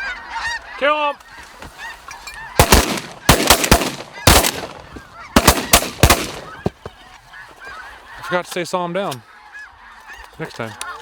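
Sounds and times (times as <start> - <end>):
geese honking: 0.0 - 11.0
shotgun shots: 2.6 - 6.7.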